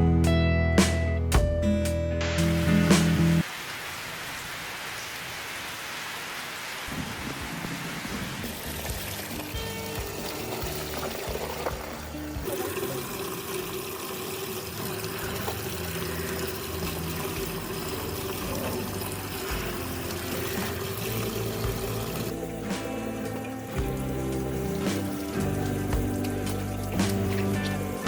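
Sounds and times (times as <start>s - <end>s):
background music with held notes: 0.0s - 3.4s, 15.7s - 28.0s
water pouring and running: 2.4s - 28.0s.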